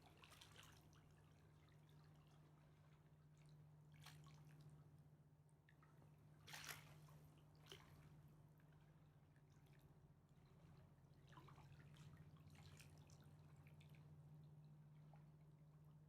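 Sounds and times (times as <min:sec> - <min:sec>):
small water splashes: 0:00.0 - 0:04.8, 0:06.4 - 0:08.3, 0:11.1 - 0:14.0
low steady hum: 0:00.0 - 0:16.0.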